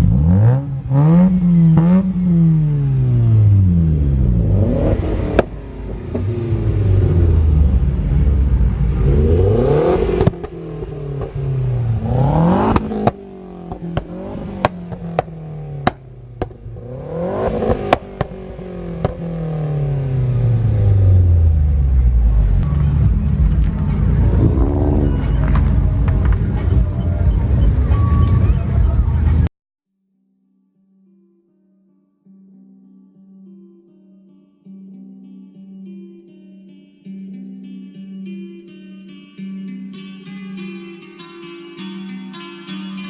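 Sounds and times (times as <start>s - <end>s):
car engines revving: 0.0s - 29.5s
short sharp exhaust pops: 12.1s - 16.8s, 17.4s - 19.5s.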